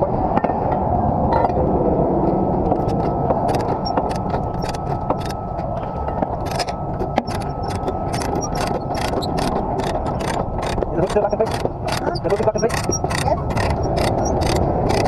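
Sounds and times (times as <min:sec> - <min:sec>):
faint whine: 0:00.0 - 0:15.0.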